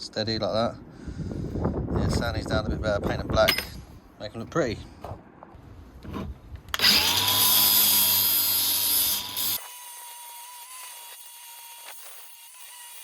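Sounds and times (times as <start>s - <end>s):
power tool abrading steel: 6.7s - 13.0s.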